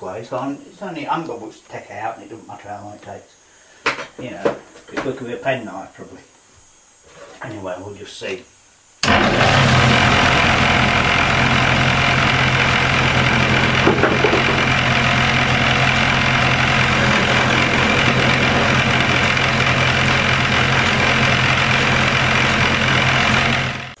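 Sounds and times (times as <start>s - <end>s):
wood lathe motor hum: 9.0s - 24.0s.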